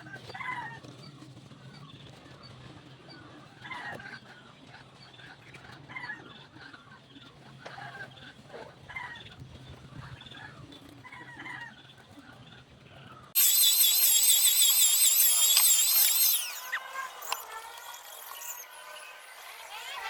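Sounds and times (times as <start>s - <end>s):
high-pitched power tool: 13.4s - 20.0s.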